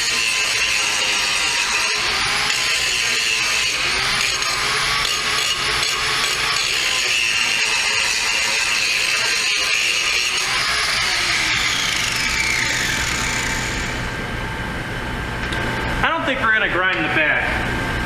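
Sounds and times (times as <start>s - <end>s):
angle grinder grinding metal: 0.0s - 14.2s.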